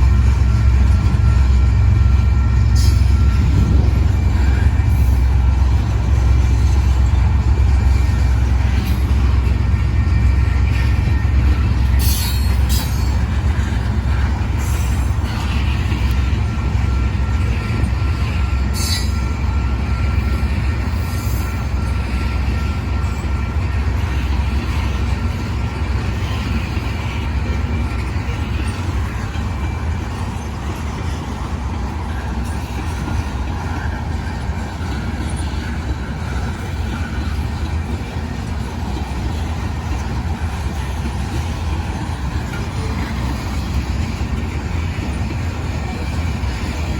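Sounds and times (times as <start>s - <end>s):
freight train rumbling past: 0.0s - 46.9s
wheel squeal: 9.9s - 46.9s.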